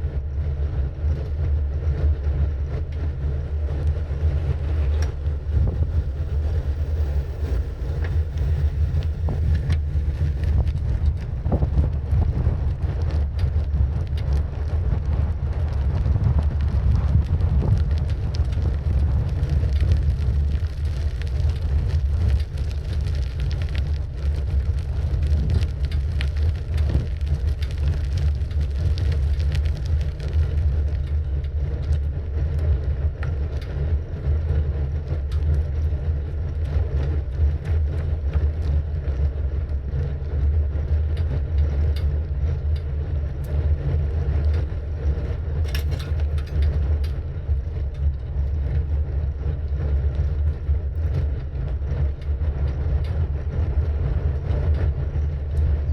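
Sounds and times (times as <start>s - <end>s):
wind rumble: 0.0s - 55.9s
bicycle tyre noise: 1.5s - 36.0s, 36.7s - 55.9s
bike clicks and rattles: 4.2s - 15.6s, 16.3s - 32.0s, 45.5s - 47.2s.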